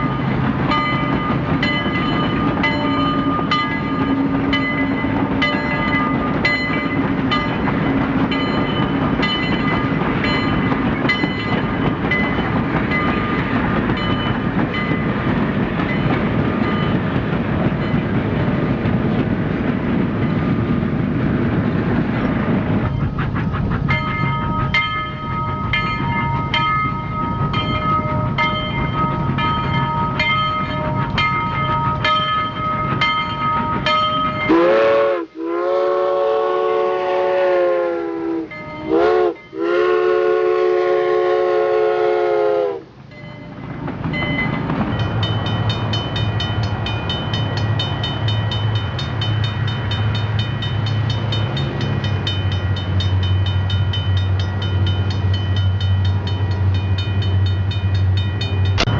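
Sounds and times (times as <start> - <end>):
train rolling with clicks: 0.0 - 58.9
multi-tone train whistle: 33.8 - 42.9.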